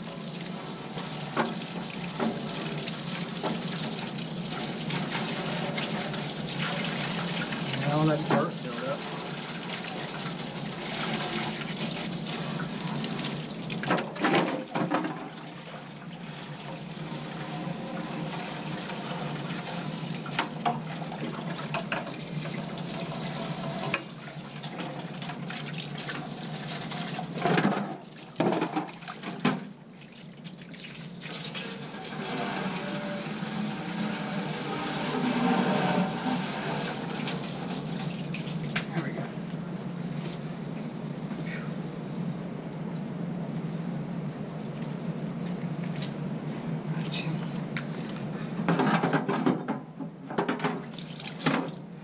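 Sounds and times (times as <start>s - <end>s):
water spraying from hose: 0.0s - 14.0s, 15.4s - 28.4s, 30.5s - 39.0s
knocks and clatters: 48.6s - 50.8s.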